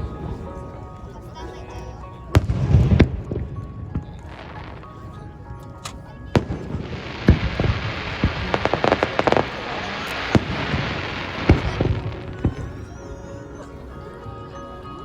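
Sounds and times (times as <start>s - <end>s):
crackling hiss of fireworks: 4.0s - 13.1s
firework shells bursting: 5.8s - 12.7s.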